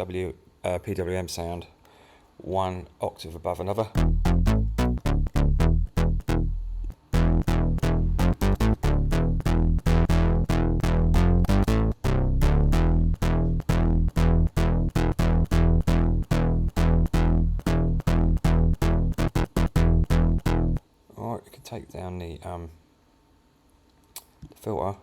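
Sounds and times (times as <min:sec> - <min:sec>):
synth square wave notes: 0:04.0 - 0:20.8.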